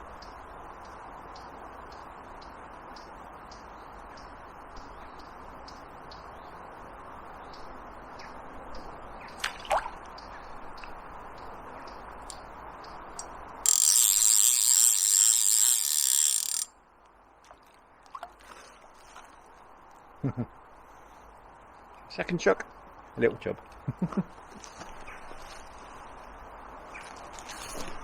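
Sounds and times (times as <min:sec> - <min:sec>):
fishing reel ratchet buzzing: 0:13.7 - 0:16.7.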